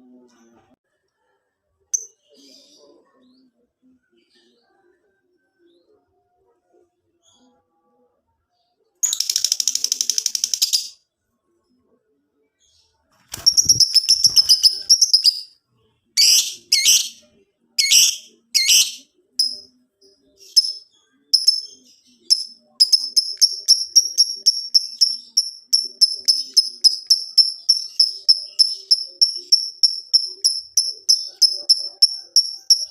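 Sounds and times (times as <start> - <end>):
lovebird singing: 13.3 - 15.5, 16.2 - 19.7, 20.4 - 32.9.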